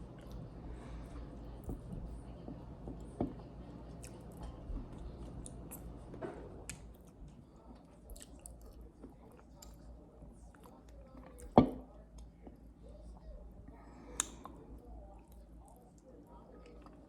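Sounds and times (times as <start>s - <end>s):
person chewing food: 0.0s - 11.6s, 13.2s - 17.0s
small mouth clicks: 14.2s - 14.5s.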